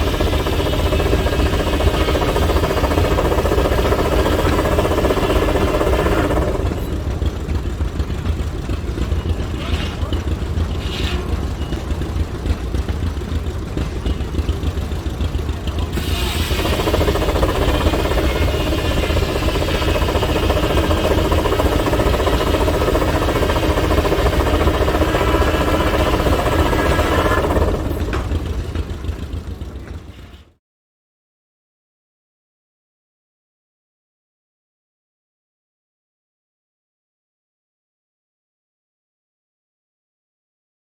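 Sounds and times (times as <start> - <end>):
machinery low rumble: 0.0 - 30.4
saw blade cutting log: 9.4 - 12.0, 15.9 - 28.3.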